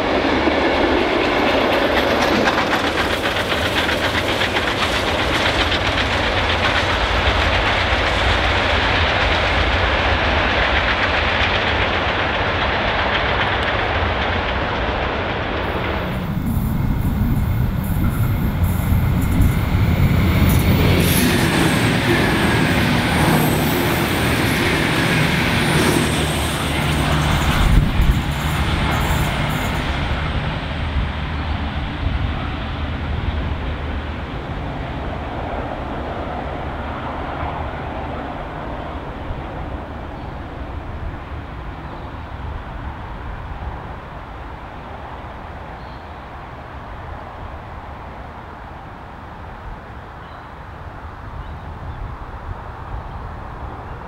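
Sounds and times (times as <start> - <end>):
train running: 0.0 - 54.0.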